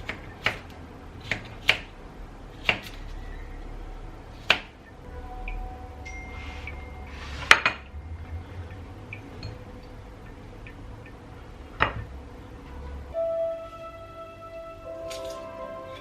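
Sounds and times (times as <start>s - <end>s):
music: 5.0s - 11.1s, 11.9s - 16.0s
dishes and utensils clinking: 15.0s - 16.0s.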